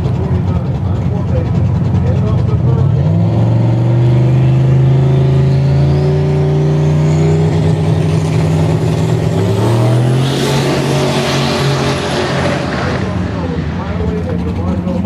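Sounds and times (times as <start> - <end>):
car engine running: 0.0 - 15.0
high whine: 4.8 - 15.0.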